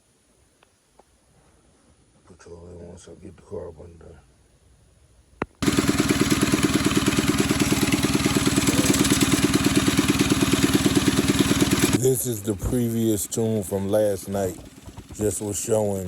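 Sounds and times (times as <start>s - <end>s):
small engine idling: 5.5s - 16.0s.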